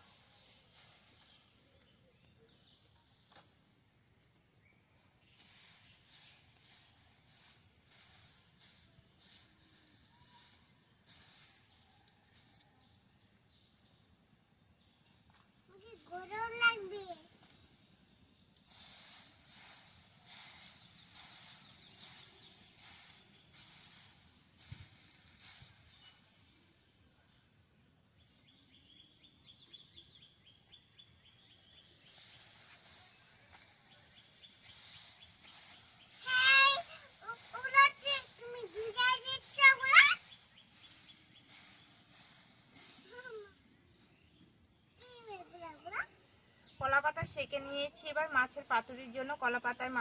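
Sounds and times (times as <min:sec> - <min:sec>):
cricket chirping: 0:00.0 - 0:50.0
leaves hissing on hot pan: 0:00.0 - 0:50.0
soft rustles: 0:05.0 - 0:12.6, 0:18.5 - 0:26.8, 0:31.9 - 0:44.1.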